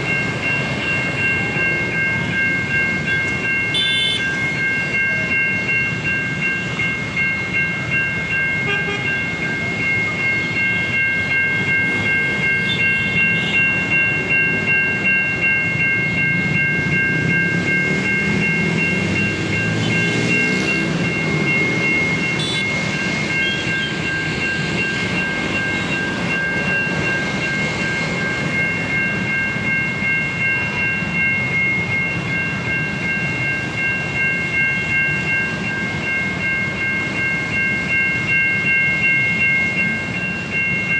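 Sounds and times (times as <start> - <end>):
electronic crossing warning bell: 0.0 - 40.9
train rumble and wheel clatter: 0.0 - 40.9.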